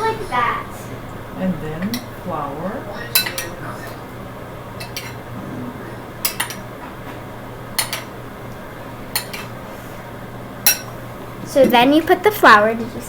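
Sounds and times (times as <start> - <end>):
utensil clinking against bowl: 1.8 - 2.2, 2.9 - 4.0, 4.8 - 5.3, 6.2 - 8.2, 9.1 - 9.6, 10.6 - 11.0.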